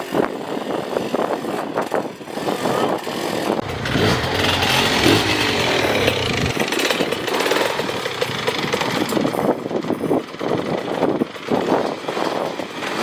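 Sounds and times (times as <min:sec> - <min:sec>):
dirt bike engines revving: 0:03.6 - 0:09.6.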